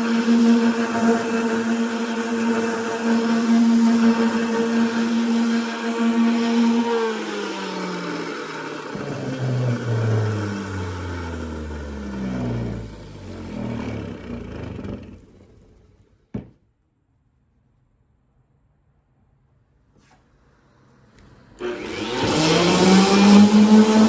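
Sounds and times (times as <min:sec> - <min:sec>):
electric sander winding down: 0:00.0 - 0:16.5, 0:21.6 - 0:24.0.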